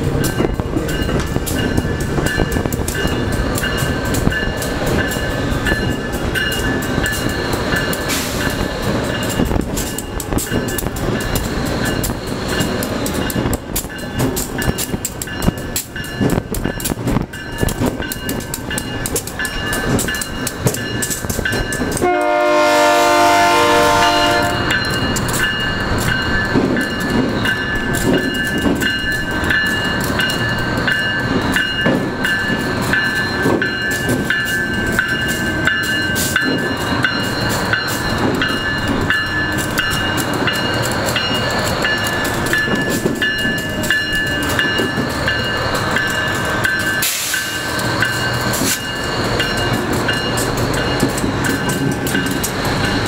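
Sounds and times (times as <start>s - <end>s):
diesel locomotive running: 0.0s - 53.0s
locomotive horn blast: 22.0s - 24.7s.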